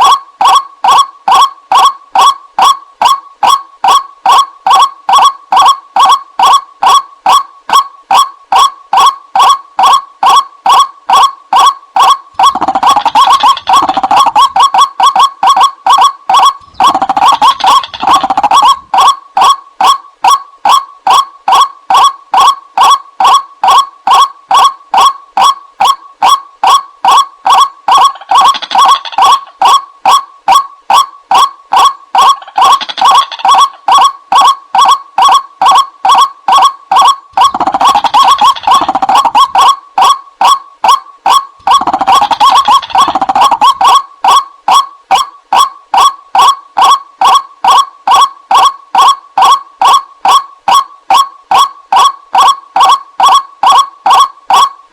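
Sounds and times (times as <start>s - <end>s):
harsh bird calls: 16.3s - 19.1s.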